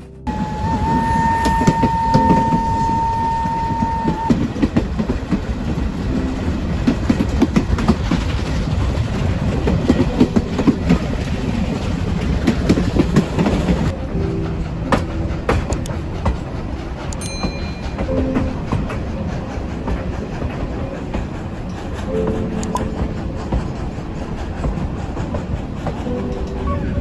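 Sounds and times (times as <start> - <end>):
held high tone: 0.0 - 4.4, 13.9 - 19.9, 26.0 - 27.0
train carriages rumbling and clattering: 0.0 - 27.0.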